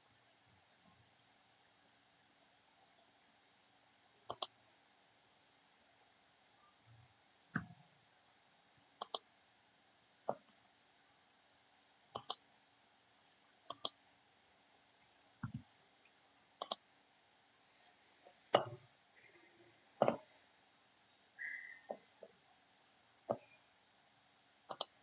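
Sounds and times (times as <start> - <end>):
computer mouse clicking: 4.3 - 4.6, 7.5 - 7.8, 9.0 - 9.3, 12.2 - 12.4, 13.7 - 14.0, 15.4 - 15.6, 16.6 - 16.8, 24.7 - 25.0.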